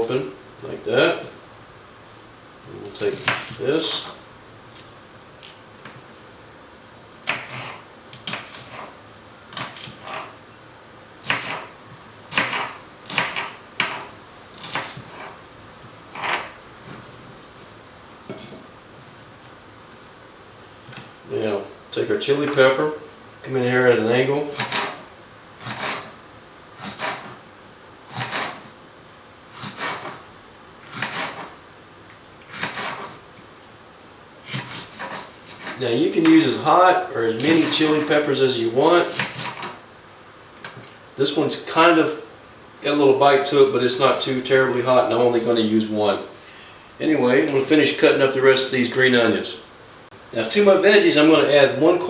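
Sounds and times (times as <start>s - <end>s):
knife slicing onion on board: 7.2s - 8.9s, 11.2s - 11.7s, 12.3s - 15.4s, 24.5s - 25.0s, 25.6s - 26.1s, 28.1s - 28.7s, 30.8s - 31.5s, 32.5s - 33.2s, 34.5s - 35.8s.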